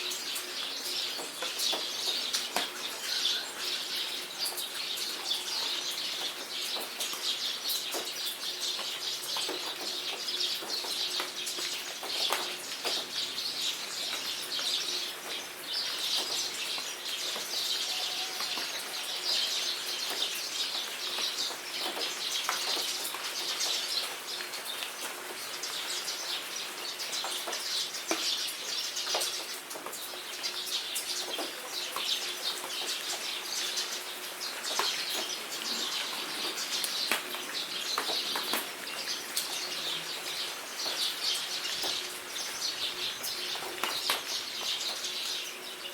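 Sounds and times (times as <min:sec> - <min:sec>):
raindrops ticking: 0:00.0 - 0:45.7
birds chirping: 0:00.0 - 0:45.9.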